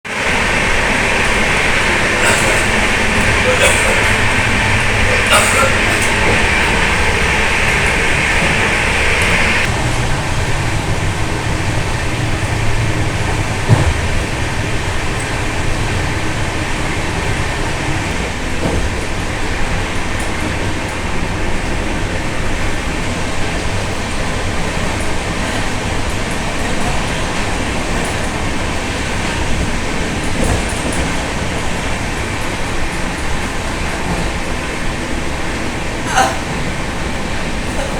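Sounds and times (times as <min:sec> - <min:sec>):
train rumble and rail noise: 0:00.0 - 0:37.9
high hiss: 0:00.1 - 0:09.7.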